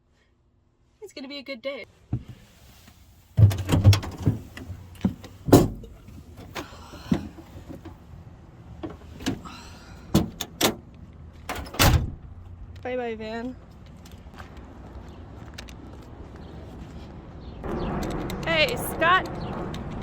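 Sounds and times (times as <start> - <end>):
van doors knocking and clicking: 3.4 - 8.0, 10.1 - 12.4.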